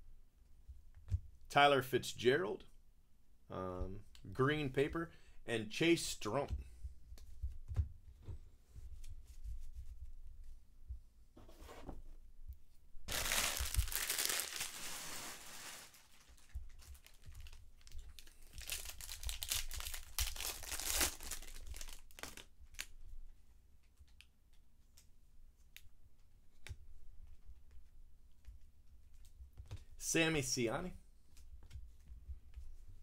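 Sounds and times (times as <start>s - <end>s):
foil wrapper tearing and crinkling: 13.1s - 22.9s.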